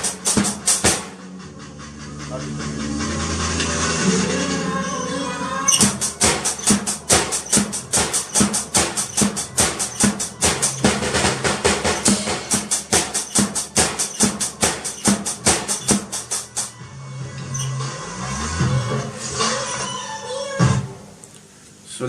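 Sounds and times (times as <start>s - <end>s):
drum kit playing a steady beat: 0.0s - 4.2s, 5.8s - 16.8s
backing music track: 0.0s - 21.0s.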